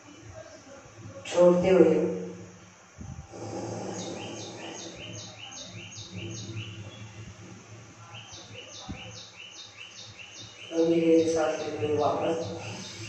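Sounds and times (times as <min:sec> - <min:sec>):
faint low hum: 0:00.0 - 0:13.0
bird chirping rapidly: 0:03.5 - 0:07.3, 0:08.0 - 0:13.0.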